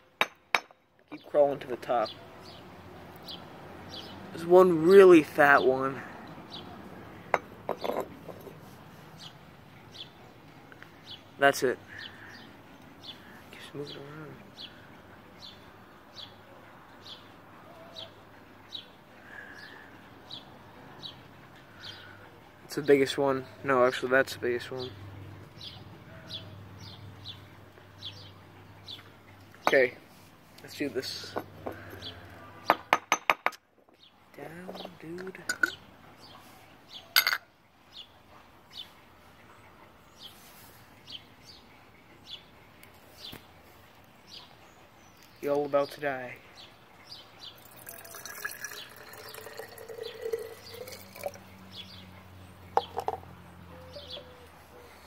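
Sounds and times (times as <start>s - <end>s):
metal jar lid clinking: 7.4s - 8.6s, 34.7s - 35.8s, 37.2s - 37.4s
bird chirping: 24.8s - 32.9s, 37.9s - 55.0s
small bird chirping: 46.5s - 55.0s.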